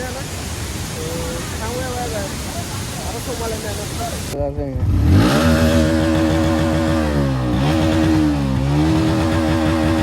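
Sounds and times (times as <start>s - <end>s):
motorcycle engine under throttle: 4.8s - 10.0s.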